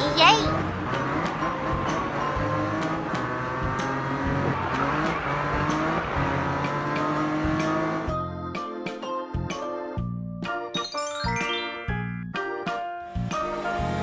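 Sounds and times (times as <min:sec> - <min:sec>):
cartoon racing car engines revving: 0:00.0 - 0:08.1.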